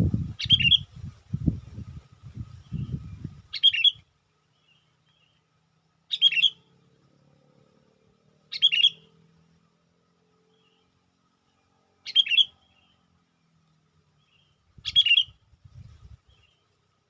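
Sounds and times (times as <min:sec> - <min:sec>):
low rumbling noise: 0:00.0 - 0:03.5
bird chirping phrases: 0:00.0 - 0:16.9.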